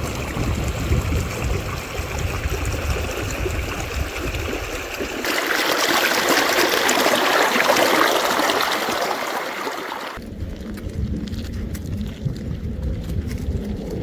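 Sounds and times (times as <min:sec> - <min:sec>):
low rumble: 0:00.0 - 0:05.1, 0:10.2 - 0:14.0.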